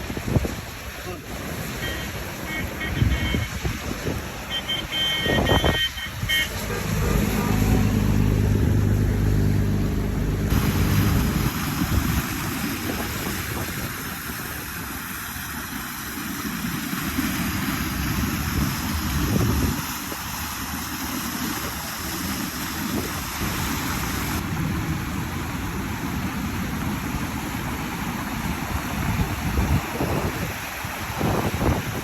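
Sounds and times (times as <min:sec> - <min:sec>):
steady rushing noise: 0:00.0 - 0:32.0
motor vehicle engine running: 0:06.4 - 0:12.0.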